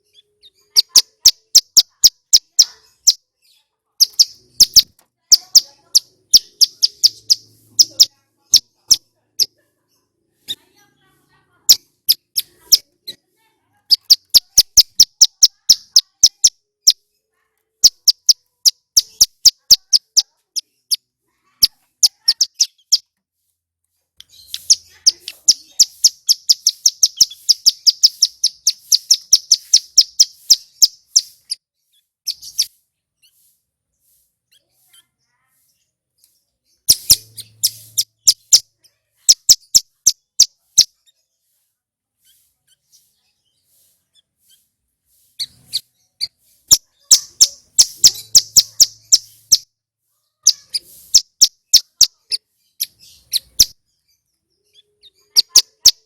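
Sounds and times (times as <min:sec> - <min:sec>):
bird singing high rapid notes: 0:00.0 - 0:09.5, 0:13.9 - 0:17.1, 0:17.8 - 0:23.1, 0:24.2 - 0:35.0, 0:36.2 - 0:41.2, 0:42.2 - 0:49.7, 0:50.4 - 0:56.0.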